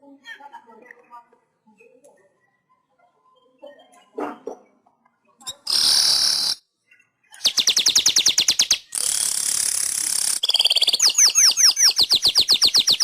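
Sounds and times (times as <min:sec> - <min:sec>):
bird singing: 0:05.3 - 0:09.6, 0:10.2 - 0:13.0.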